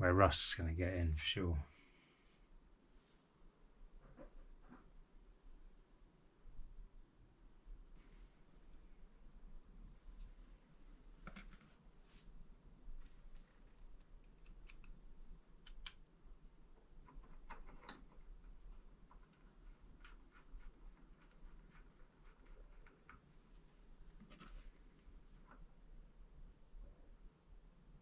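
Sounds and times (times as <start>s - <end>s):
small metal parts clicking: 14.2s - 15.0s.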